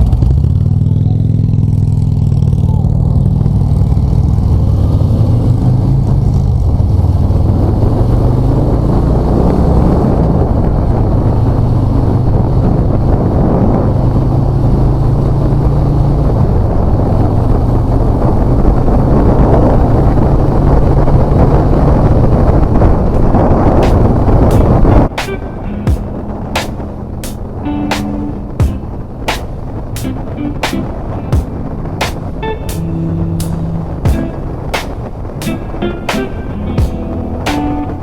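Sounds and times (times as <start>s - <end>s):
motorcycle engine running: 0.0s - 8.0s, 28.6s - 30.1s
wind rushing past microphone: 1.5s - 38.0s.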